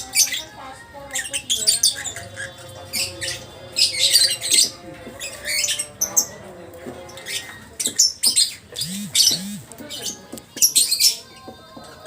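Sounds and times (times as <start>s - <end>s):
lovebird chattering calls: 8.8s - 9.7s.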